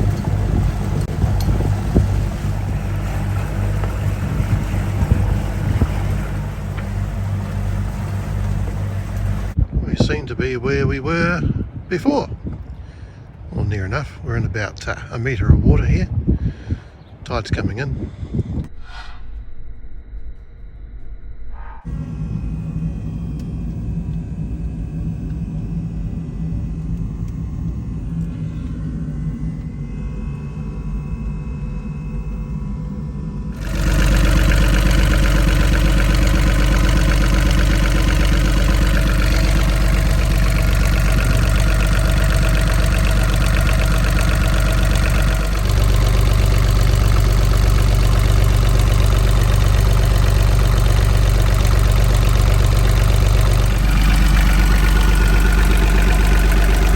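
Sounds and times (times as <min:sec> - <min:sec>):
boat diesel engine idling: 0:00.0 - 0:09.6, 0:21.9 - 0:56.9.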